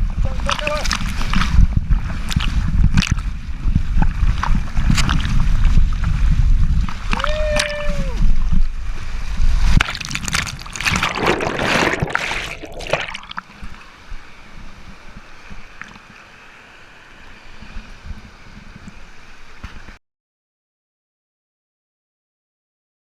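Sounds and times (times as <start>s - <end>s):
water splashing: 0.3s - 6.2s, 6.8s - 14.1s
water trickling: 9.8s - 14.0s.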